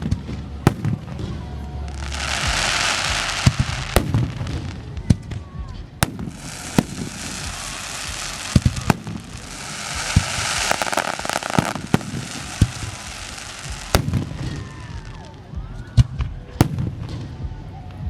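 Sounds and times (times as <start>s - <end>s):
fireworks crackling: 0.0s - 17.6s
firework shells bursting: 6.0s - 15.2s.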